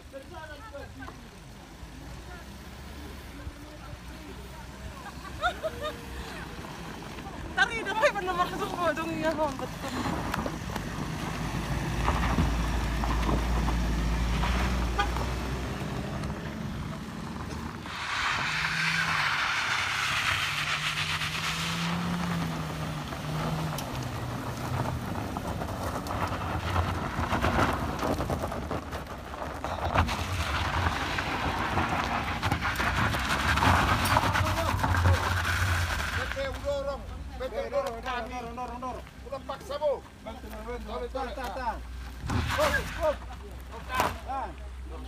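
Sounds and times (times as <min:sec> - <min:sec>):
car engines labouring uphill: 0:00.0 - 0:45.0
rushing noise: 0:14.0 - 0:28.6.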